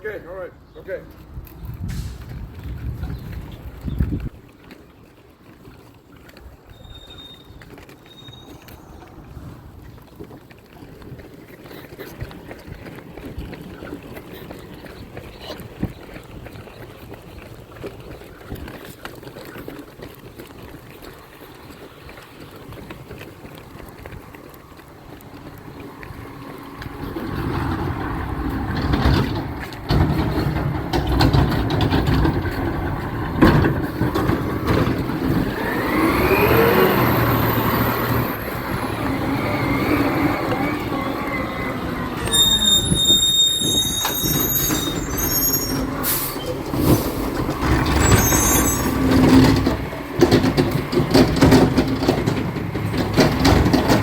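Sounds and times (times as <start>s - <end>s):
truck engine: 1.9s - 2.2s, 23.3s - 54.0s.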